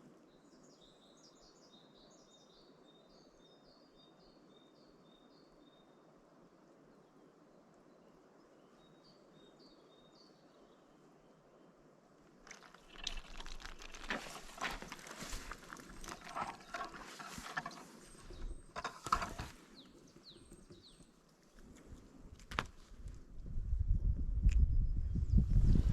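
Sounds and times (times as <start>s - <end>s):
rustling crackling and knocking: 12.4s - 21.0s.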